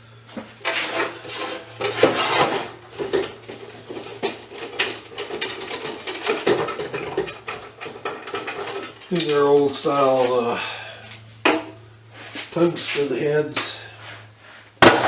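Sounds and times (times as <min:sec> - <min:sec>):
scrap metal clattering and scraping: 0:00.3 - 0:15.0.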